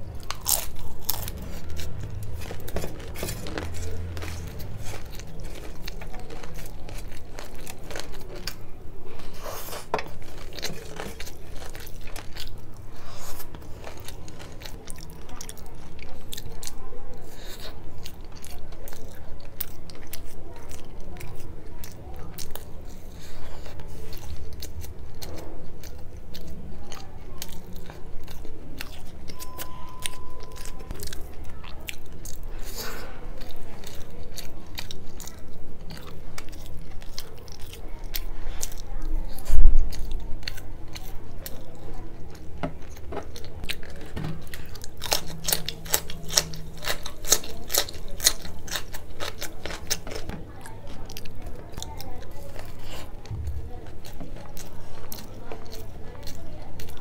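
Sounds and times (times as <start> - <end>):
crunching fried food: 0.0 - 57.0.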